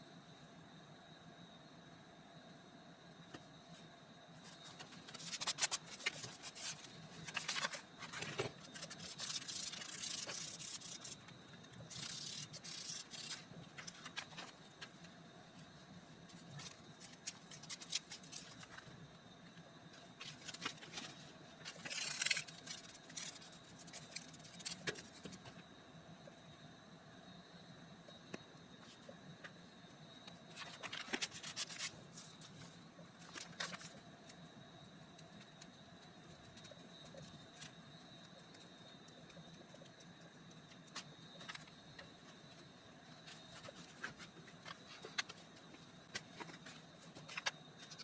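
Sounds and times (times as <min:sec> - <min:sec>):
paper rustling and scraping: 0:04.5 - 0:14.6, 0:20.2 - 0:25.4, 0:30.6 - 0:34.0.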